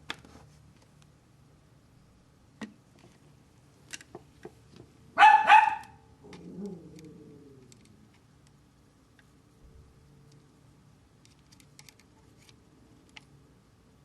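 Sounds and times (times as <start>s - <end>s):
dog barking: 5.2s - 6.0s.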